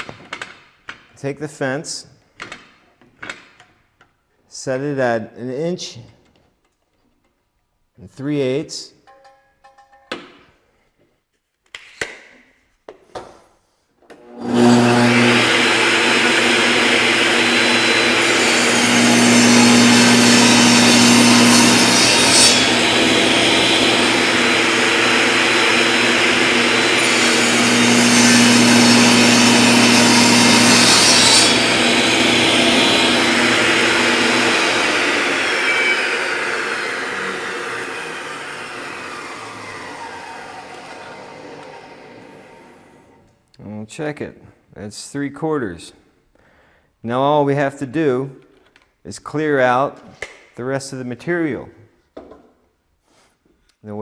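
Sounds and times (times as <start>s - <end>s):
saw blade cutting wood: 14.2s - 43.1s
table saw motor running: 14.2s - 43.2s.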